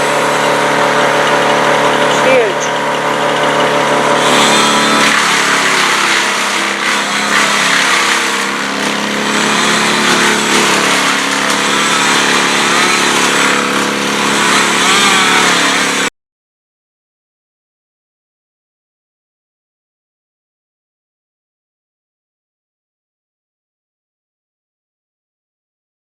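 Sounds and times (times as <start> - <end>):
engine revving loudly: 0.0 - 16.1.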